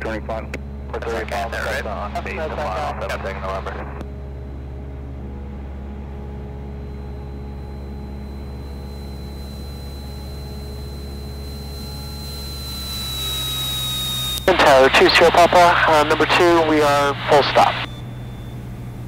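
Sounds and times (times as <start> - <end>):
aircraft engine droning: 0.0 - 19.0
thin high whistle: 6.7 - 15.3, 17.7 - 19.0.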